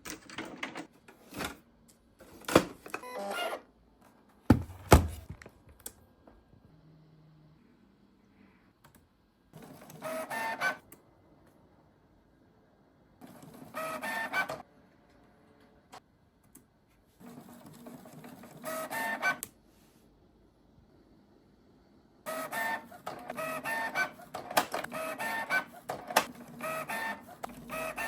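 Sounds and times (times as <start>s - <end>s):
printer motor whine: 13.2s - 14.6s, 18.2s - 19.4s, 22.3s - 28.0s
printer motor whirring: 22.3s - 28.0s.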